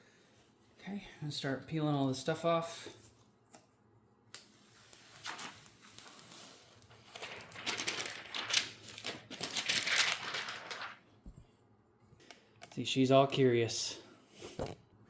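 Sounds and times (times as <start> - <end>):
plastic film crinkling and rustling: 4.4 - 11.2.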